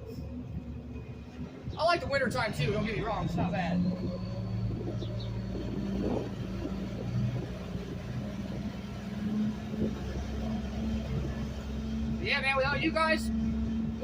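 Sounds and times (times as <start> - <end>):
garbage truck engine humming: 0.0 - 14.0.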